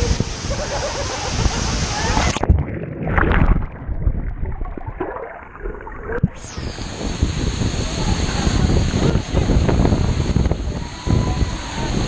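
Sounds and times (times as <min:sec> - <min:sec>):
waterfall rushing: 0:00.0 - 0:02.5, 0:06.3 - 0:12.0.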